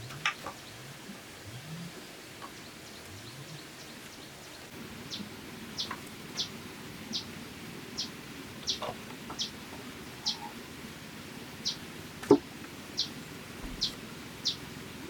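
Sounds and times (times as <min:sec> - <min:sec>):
outdoor hiss: 0:00.0 - 0:15.0
bird chirping: 0:02.4 - 0:07.3, 0:08.0 - 0:09.6, 0:10.2 - 0:10.6, 0:11.6 - 0:15.0
low rising bird calls: 0:08.0 - 0:10.6.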